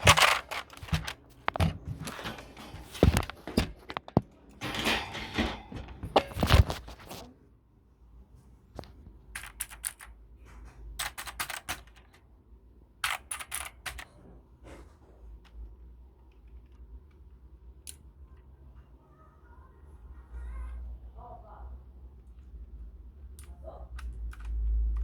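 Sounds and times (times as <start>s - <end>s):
keyboard keys clicking: 11.0s - 12.1s.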